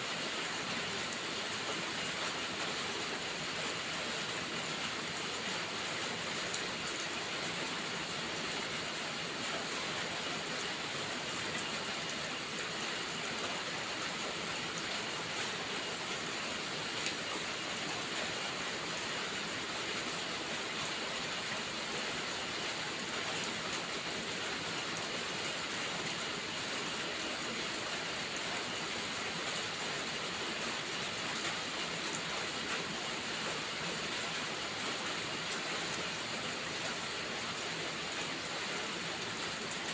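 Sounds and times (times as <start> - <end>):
steady rain hiss: 0.0 - 39.9
faint raindrop ticks: 6.4 - 7.2, 11.5 - 16.3, 17.0 - 18.2.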